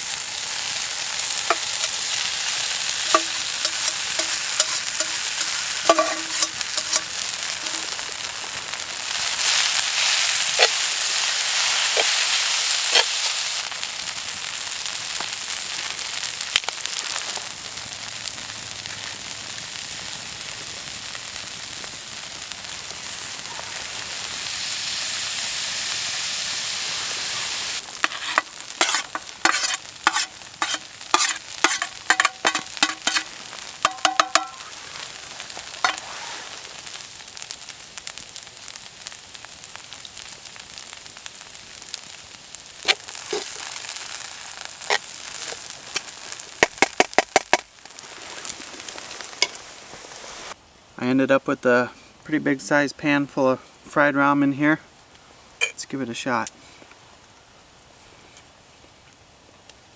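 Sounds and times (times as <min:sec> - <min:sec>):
utensil scraping metal pan: 0:00.0 - 0:08.1, 0:09.2 - 0:13.2, 0:28.0 - 0:34.8, 0:35.8 - 0:36.6
noodles sizzling in a pan: 0:00.0 - 0:50.8.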